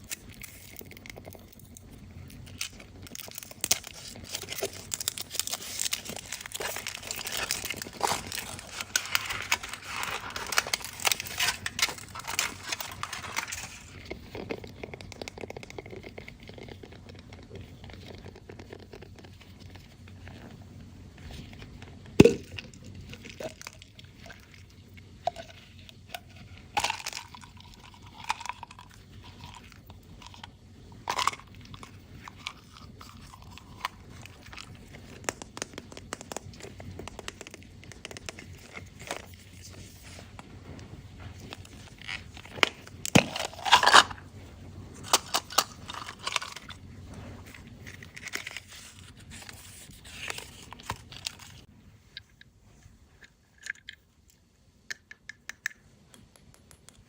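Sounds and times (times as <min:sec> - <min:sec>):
foil wrapper crinkling and tearing: 0:00.0 - 0:20.4, 0:25.4 - 0:40.3, 0:41.4 - 0:44.2, 0:45.0 - 0:46.8, 0:47.4 - 0:51.7.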